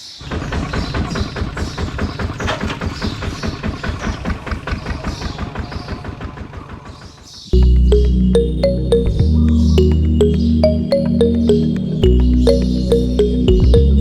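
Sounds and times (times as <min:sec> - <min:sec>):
small diesel engine knocking: 0:00.5 - 0:07.1.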